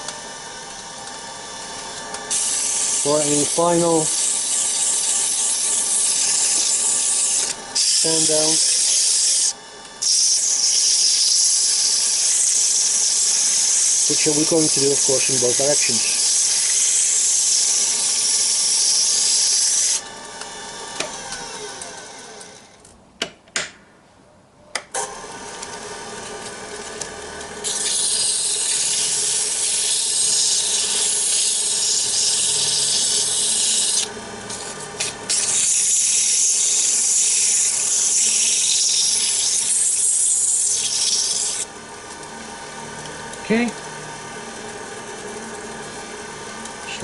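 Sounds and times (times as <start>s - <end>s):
lathe motor hum: 0.0s - 22.8s, 25.0s - 47.0s
sandpaper hissing on spinning wood: 2.3s - 20.0s, 27.6s - 41.6s.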